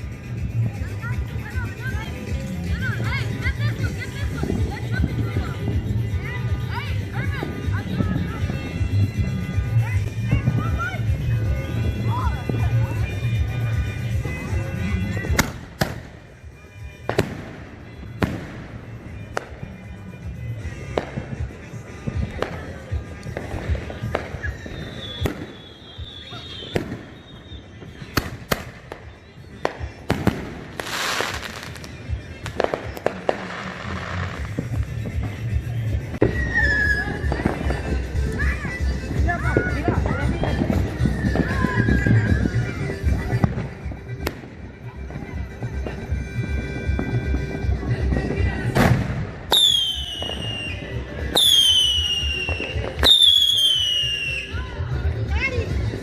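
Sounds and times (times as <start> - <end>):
firework cracks: 15.3 - 16.2, 23.2 - 35.0
fireworks bangs: 17.0 - 19.7, 20.9 - 35.4, 47.8 - 54.5.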